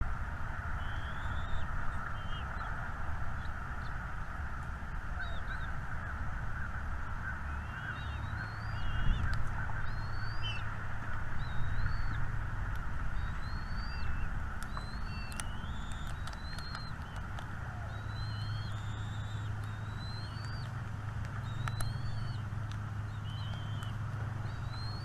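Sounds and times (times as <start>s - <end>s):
dense twitter: 0.7s - 2.8s, 5.0s - 10.6s, 13.2s - 20.7s
small birds whistling: 0.8s - 2.8s, 5.1s - 10.7s, 11.4s - 12.3s, 13.0s - 25.0s.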